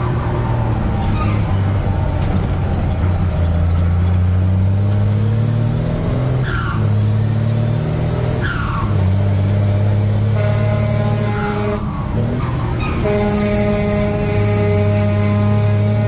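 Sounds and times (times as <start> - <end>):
truck engine pulling under load: 0.0 - 16.0.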